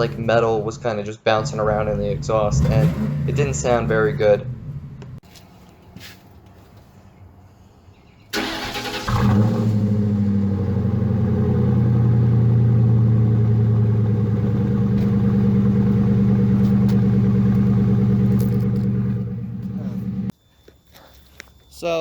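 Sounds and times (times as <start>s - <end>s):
car engine starting and idling: 0.0s - 0.8s, 1.4s - 5.2s, 8.3s - 20.3s.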